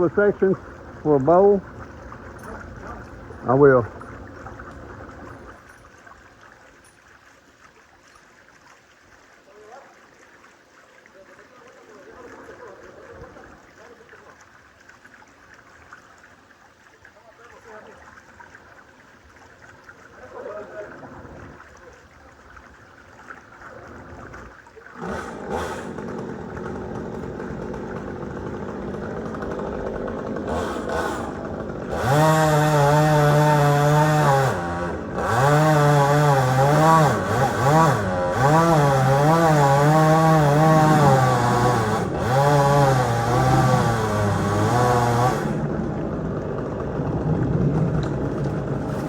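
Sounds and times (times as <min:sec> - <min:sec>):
chainsaw cutting wood: 0:25.0 - 0:49.0.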